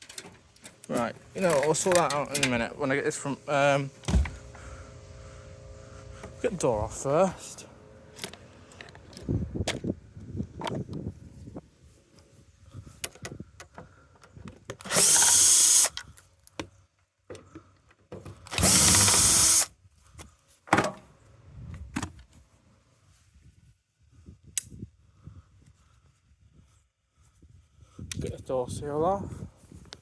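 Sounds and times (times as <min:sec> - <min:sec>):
clicks and knocks of handling: 0:00.0 - 0:02.6
cordless drill running: 0:14.8 - 0:16.0, 0:18.5 - 0:19.7.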